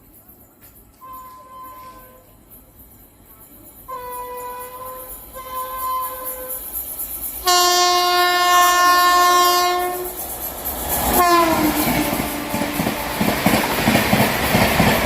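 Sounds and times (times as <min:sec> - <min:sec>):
train horn blast: 0:01.0 - 0:02.3, 0:03.9 - 0:06.6, 0:07.4 - 0:10.2, 0:11.2 - 0:13.6.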